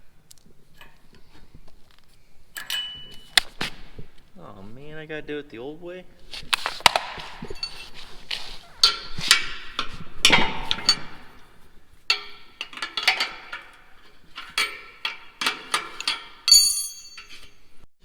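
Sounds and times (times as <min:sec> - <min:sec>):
hand tools knocking on metal: 0:12.1 - 0:17.6.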